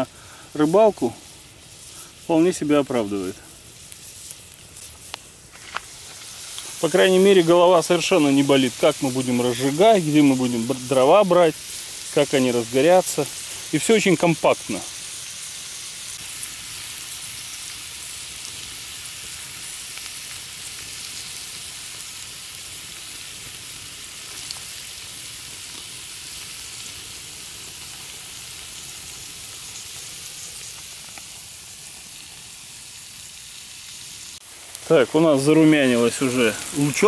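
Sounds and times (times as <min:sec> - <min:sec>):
onions sizzling in a pan: 0:00.0 - 0:37.0.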